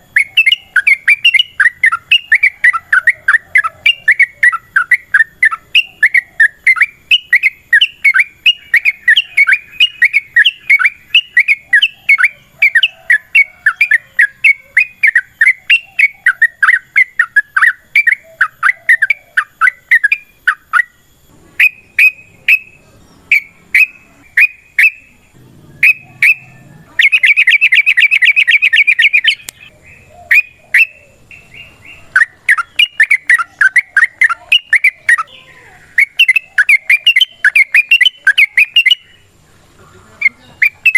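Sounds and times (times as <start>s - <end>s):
bird chirping song: 0.0s - 40.9s
bird rattling trill: 25.8s - 29.7s, 35.9s - 39.3s.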